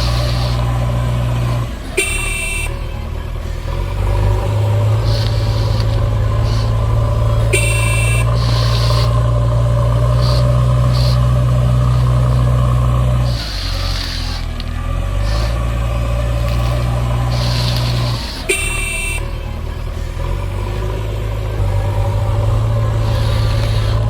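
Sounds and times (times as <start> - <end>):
heavy vehicle engine droning: 0.0 - 24.0
short hisses: 5.0 - 9.3, 13.2 - 15.8
short high beep: 7.5 - 8.4.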